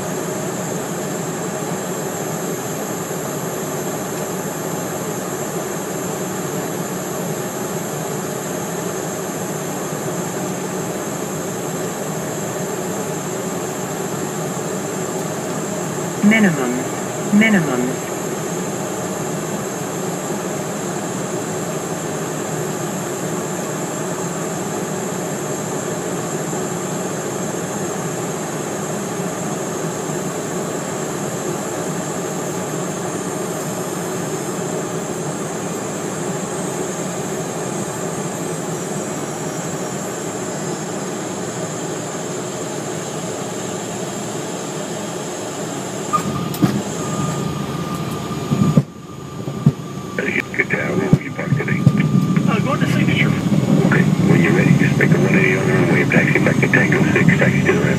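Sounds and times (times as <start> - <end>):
jet engines in cockpit: 0.0 - 57.9
high whine: 15.2 - 18.8, 46.0 - 57.9
short tone: 46.1 - 50.5.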